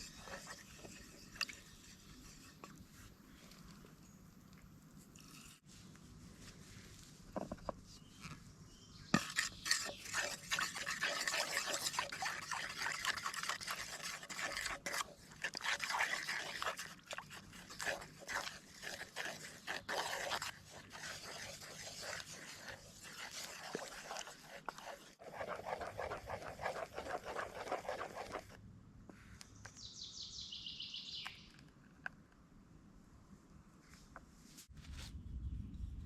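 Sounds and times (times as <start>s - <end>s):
utensil scraping in a bowl: 0.0s - 3.8s, 9.1s - 28.6s.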